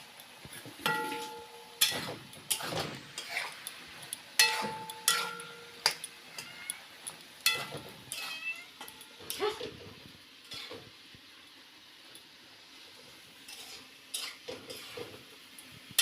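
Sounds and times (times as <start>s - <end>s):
pot ringing: 0.8s - 2.1s, 4.4s - 6.5s
metal utensil clanking on pot: 0.8s - 3.6s, 4.4s - 6.5s, 7.4s - 9.7s.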